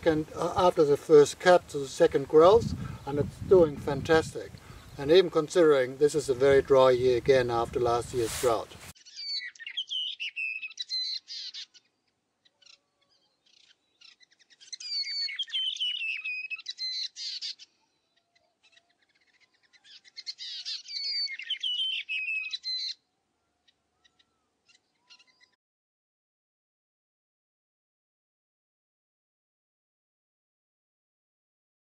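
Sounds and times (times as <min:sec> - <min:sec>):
songbird warbling: 0:09.0 - 0:25.6.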